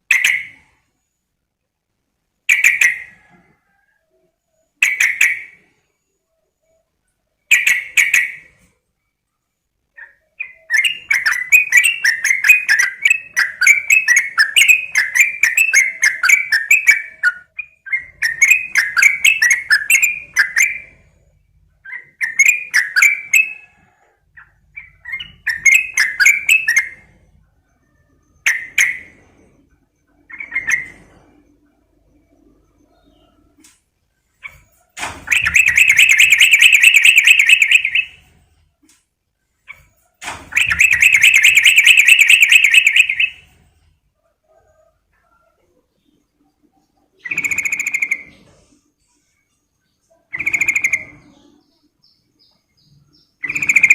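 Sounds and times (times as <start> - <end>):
bulbul singing: 10.0 - 21.1, 21.8 - 23.7, 24.4 - 27.2, 35.2 - 38.3, 40.5 - 43.5, 50.0 - 53.9.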